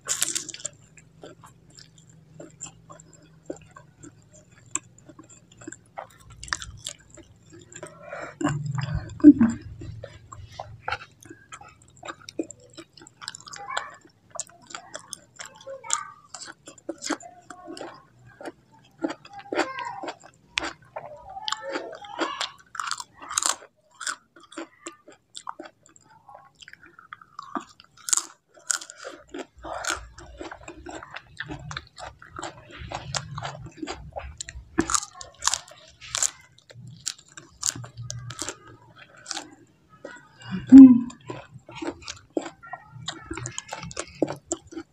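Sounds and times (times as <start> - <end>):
wet mouth clicks: 0.0 - 13.4, 40.4 - 44.8
chewing with crisp crunches: 0.0 - 44.9.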